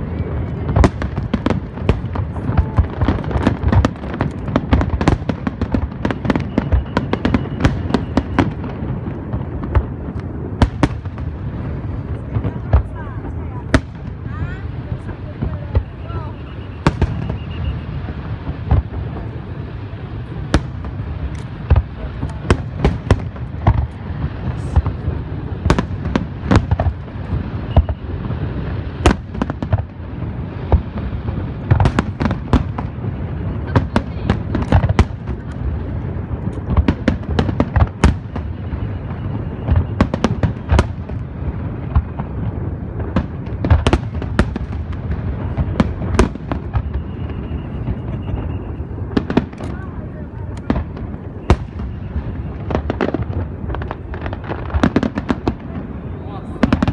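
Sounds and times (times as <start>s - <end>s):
steady low rumble: 0.0s - 56.6s
fireworks bangs: 0.0s - 56.9s
crackle of shells bursting: 21.2s - 21.6s.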